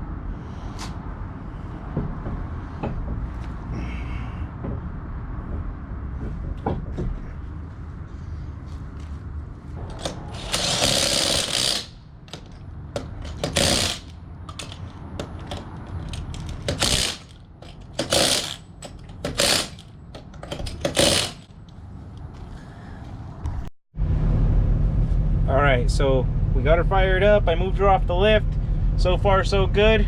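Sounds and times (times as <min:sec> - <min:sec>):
clicks and clanks of hand work: 0:09.9 - 0:21.8
power tool bursts: 0:10.0 - 0:12.0, 0:13.4 - 0:14.1, 0:16.7 - 0:17.3, 0:18.0 - 0:18.6, 0:19.3 - 0:19.8, 0:20.8 - 0:21.4.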